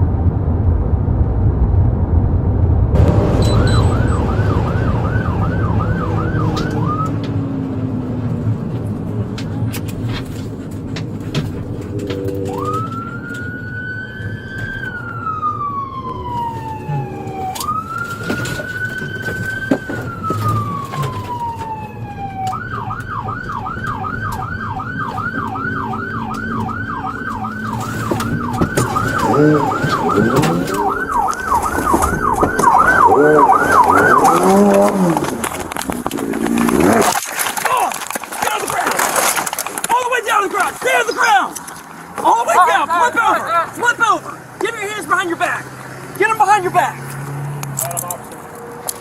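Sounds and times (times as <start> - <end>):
vehicle rumble: 0.0 - 49.0
police siren wailing and yelping: 3.0 - 8.0, 10.9 - 35.9.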